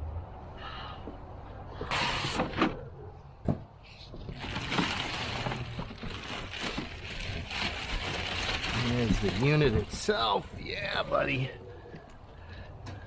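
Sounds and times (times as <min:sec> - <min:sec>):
packaging rustling and scraping: 0:04.1 - 0:11.2.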